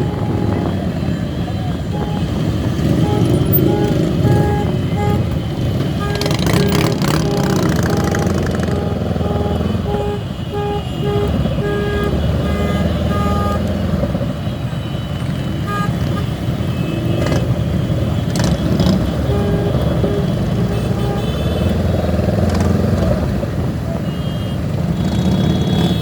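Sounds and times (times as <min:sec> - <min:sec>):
vehicle horn short beeps: 0:00.0 - 0:13.9
motorcycle engines and traffic: 0:00.0 - 0:26.0.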